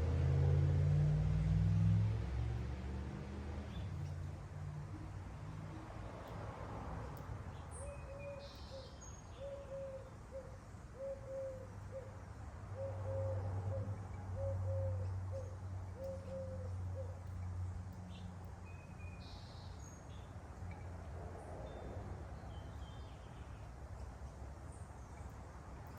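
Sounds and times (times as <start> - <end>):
small bird chirping: 7.5 - 12.2, 12.8 - 20.9
dove cooing: 9.4 - 12.1, 12.8 - 17.1.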